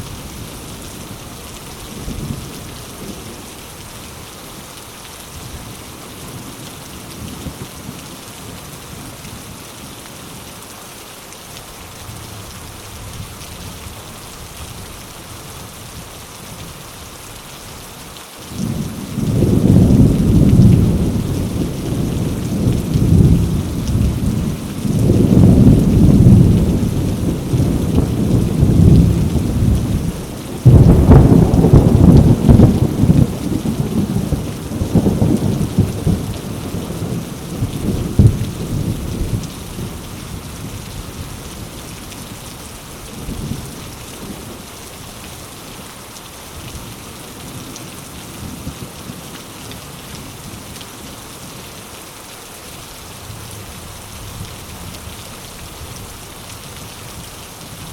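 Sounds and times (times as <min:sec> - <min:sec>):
heavy rain on leaves: 0:00.0 - 0:57.9
deep rumbling: 0:30.6 - 0:33.2.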